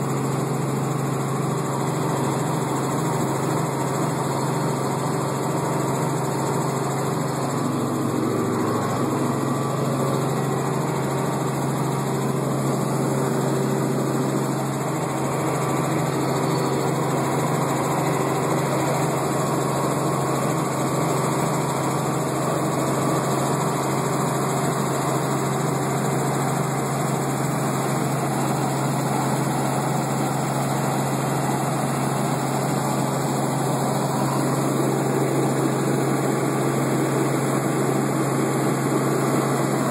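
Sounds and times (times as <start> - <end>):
helicopter engine and rotor drone: 0.0 - 39.9
broad rushing noise: 6.4 - 20.1.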